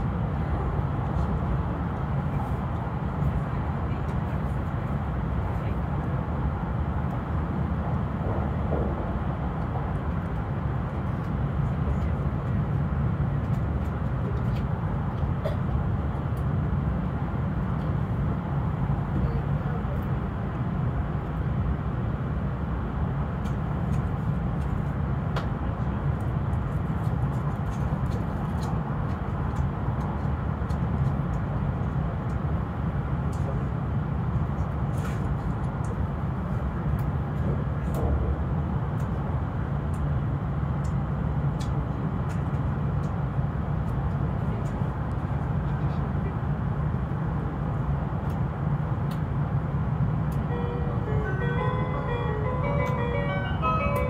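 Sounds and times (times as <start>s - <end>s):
train rumble inside carriage: 0.0s - 54.0s.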